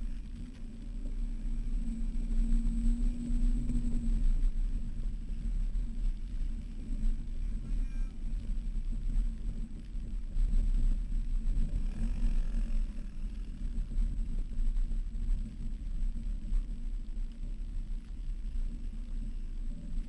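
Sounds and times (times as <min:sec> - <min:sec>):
off-road vehicle rumbling on sand: 0:00.0 - 0:14.8.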